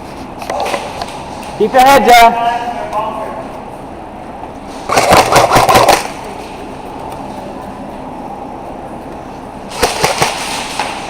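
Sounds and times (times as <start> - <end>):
airsoft gun full-auto bursts: 4.9 - 6.1, 9.7 - 10.6.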